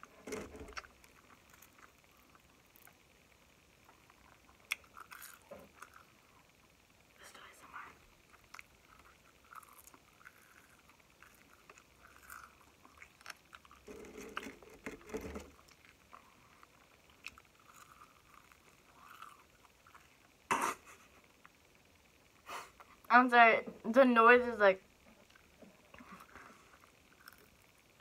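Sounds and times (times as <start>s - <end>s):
small crackles: 0.0s - 23.2s, 24.8s - 28.0s
chewing close to mic: 3.9s - 6.5s, 8.3s - 20.3s, 25.2s - 27.8s.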